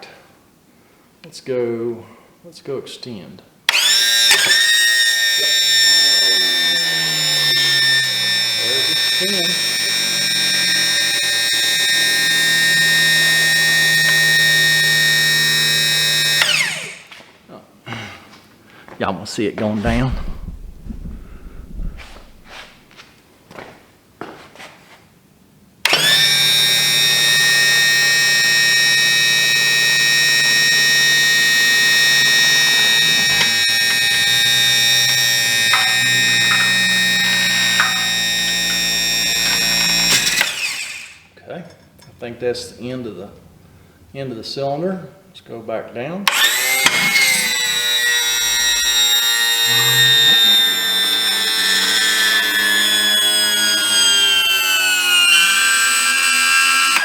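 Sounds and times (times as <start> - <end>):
hydraulic pump whining: 3.7 - 17.2, 19.8 - 22.8, 25.9 - 41.3, 46.3 - 57.0.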